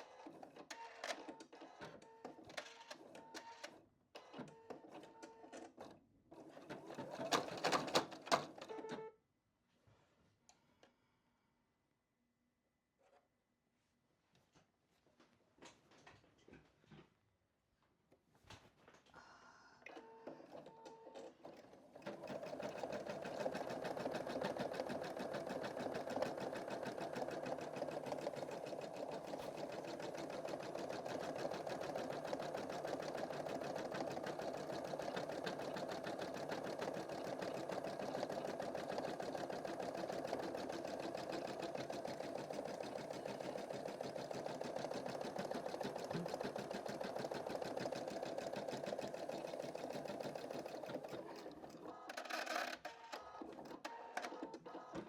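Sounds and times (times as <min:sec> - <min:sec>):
embroidery machine stitching: 0:06.8 - 0:08.5, 0:20.5 - 0:55.0.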